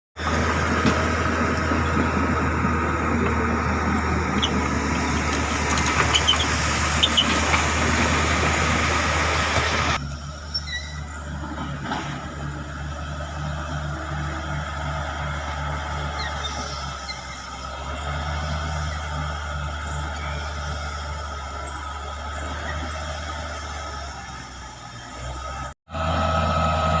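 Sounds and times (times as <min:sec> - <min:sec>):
bulldozer diesel engine running: 0:00.2 - 0:27.0
short squeaks: 0:04.4 - 0:07.8, 0:10.5 - 0:11.1, 0:16.1 - 0:17.5.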